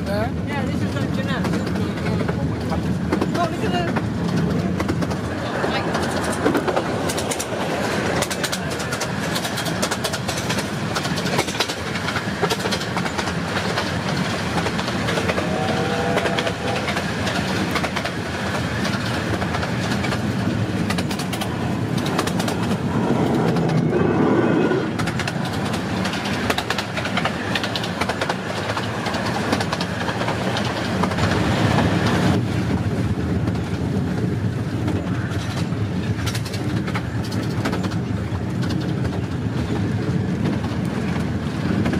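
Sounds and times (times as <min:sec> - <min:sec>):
train wheels rumbling: 0:00.0 - 0:41.9
wheels clattering over rail joints: 0:00.8 - 0:32.5.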